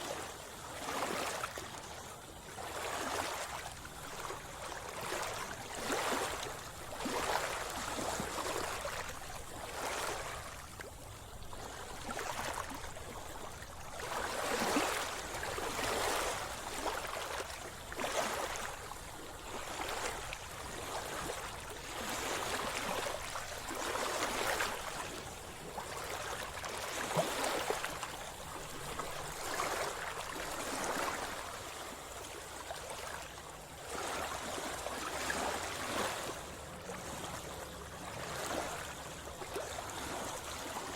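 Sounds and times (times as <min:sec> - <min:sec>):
sea water splashing: 0:02.6 - 0:33.2.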